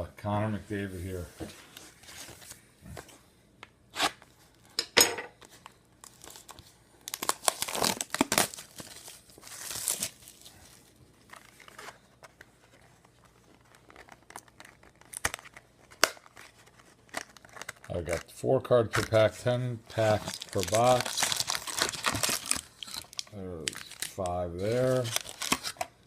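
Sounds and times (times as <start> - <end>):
packaging crinkling and tearing: 5.5 - 18.3, 18.9 - 26.0.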